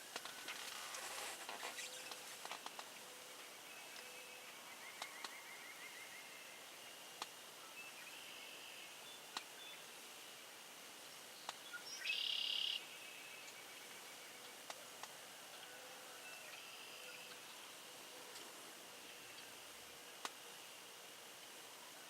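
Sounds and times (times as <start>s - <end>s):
distant songbirds chirping: 0.1s - 21.9s
high buzzy bird call: 11.7s - 14.4s.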